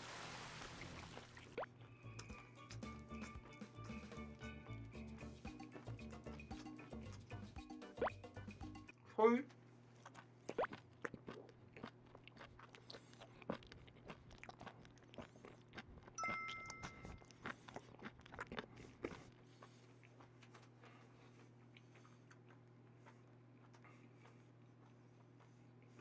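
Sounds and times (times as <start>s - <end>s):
two-tone ping: 16.2s - 17.2s.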